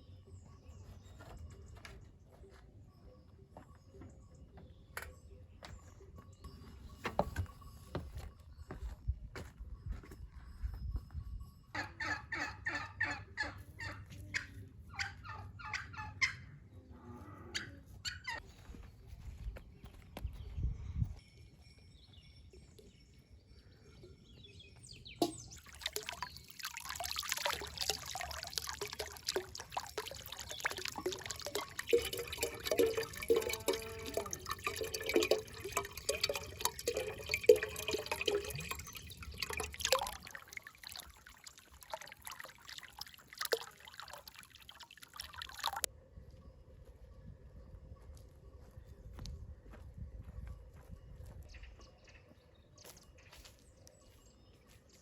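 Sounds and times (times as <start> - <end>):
water splashing and trickling: 25.1 - 45.9.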